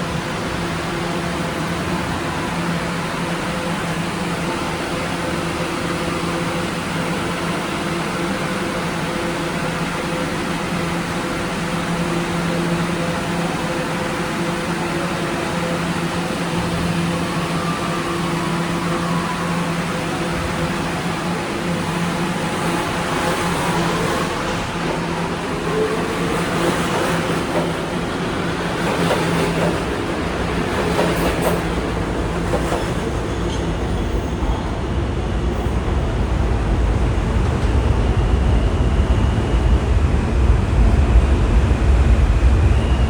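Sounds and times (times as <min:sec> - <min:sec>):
wheel-on-rail noise: 0:10.1 - 0:38.8
deep rumble: 0:35.9 - 0:43.0.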